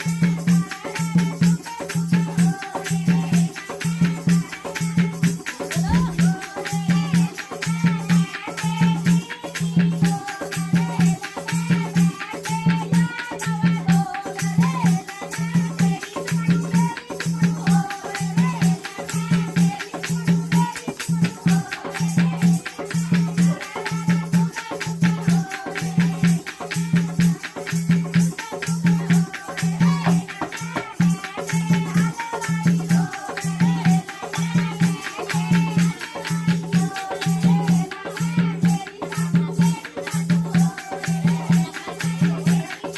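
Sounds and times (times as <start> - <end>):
rapid rattling percussion: 0.0 - 42.9
deep drum beat: 5.8 - 7.1.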